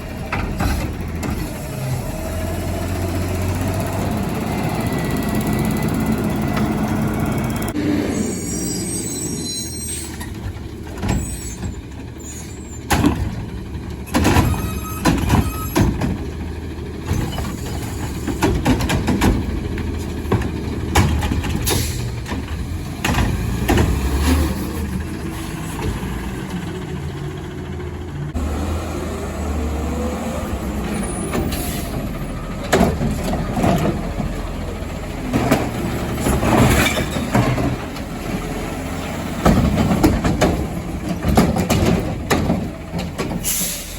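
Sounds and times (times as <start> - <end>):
truck engine rumble: 0.0 - 43.9
metal clanks and bangs: 12.8 - 16.4, 17.0 - 25.1, 35.3 - 38.5, 39.3 - 43.7.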